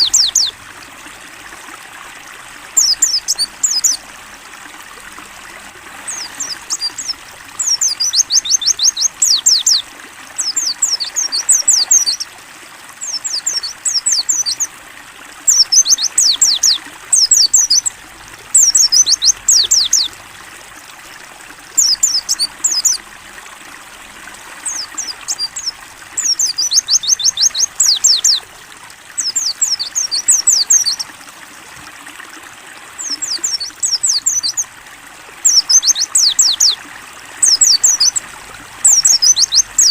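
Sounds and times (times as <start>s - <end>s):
bird singing high rapid phrases: 0.0s - 0.6s, 2.8s - 4.0s, 6.1s - 9.8s, 10.4s - 12.3s, 13.0s - 14.7s, 15.4s - 17.9s, 18.6s - 20.1s, 21.8s - 23.0s, 24.6s - 28.5s, 29.2s - 31.1s, 33.0s - 34.7s, 35.4s - 36.8s, 37.4s - 38.2s, 38.8s - 39.9s
trickle of running water: 0.0s - 39.9s.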